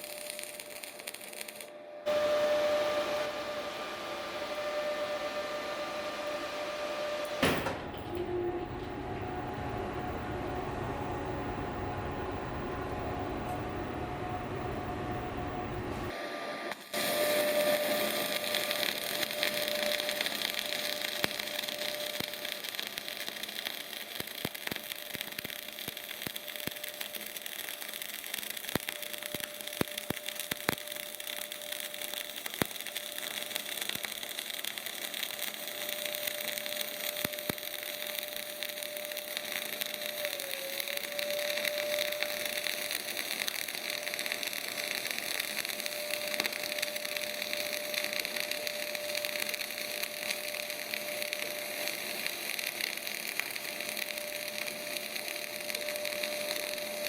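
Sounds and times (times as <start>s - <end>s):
sharp welding pops: 0.0s - 3.4s, 7.0s - 9.3s, 16.7s - 57.0s
welding arc crackling hiss: 0.0s - 57.0s
steady hum: 1.5s - 22.5s.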